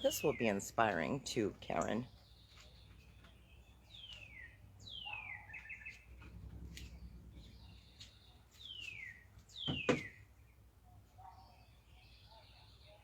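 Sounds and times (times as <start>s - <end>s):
songbird whistling and trilling: 3.5s - 6.1s, 7.5s - 10.2s.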